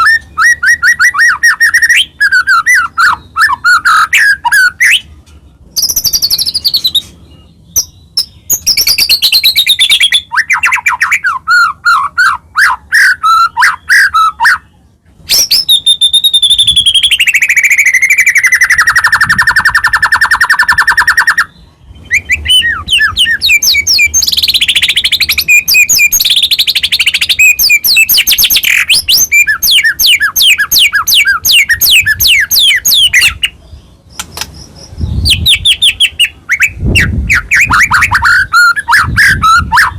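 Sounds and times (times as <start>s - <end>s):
bird singing whistles and trills: 0.0s - 5.1s, 5.7s - 39.9s.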